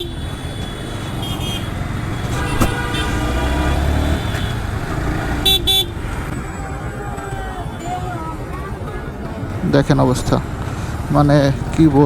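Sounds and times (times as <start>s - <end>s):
vehicle horn honks: 0.0s - 4.7s, 5.4s - 6.0s
road traffic engine rumble: 0.0s - 12.0s.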